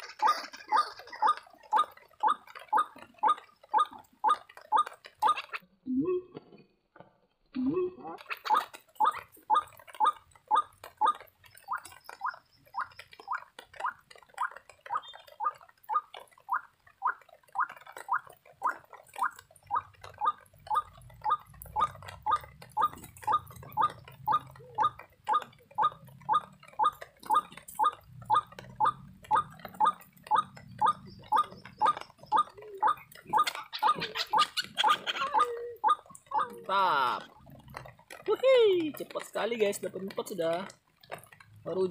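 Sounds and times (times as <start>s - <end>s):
waterhen calling short repeated notes: 8.2s - 37.2s.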